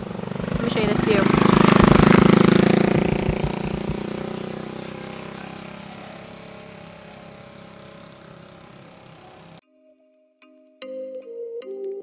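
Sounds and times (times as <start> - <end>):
vehicle engine running: 0.0 - 9.6
wind and road noise: 0.0 - 9.6.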